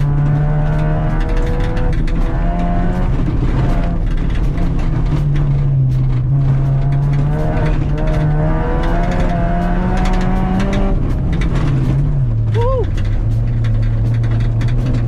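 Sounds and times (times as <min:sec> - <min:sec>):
car engine revving: 0:00.0 - 0:15.0
gravel striking car: 0:00.0 - 0:15.0.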